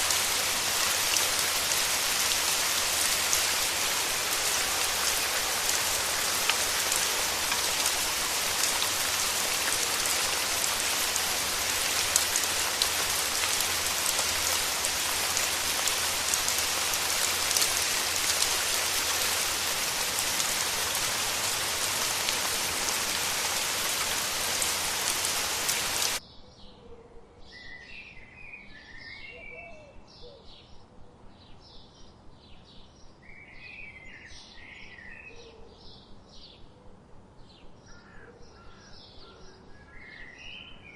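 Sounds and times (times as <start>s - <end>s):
steady rain hissing: 0.0s - 26.2s.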